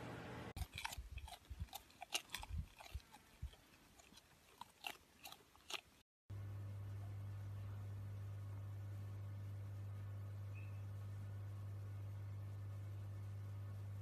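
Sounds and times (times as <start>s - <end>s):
steady low hum: 0.0s - 14.0s
animal chewing: 0.6s - 6.1s.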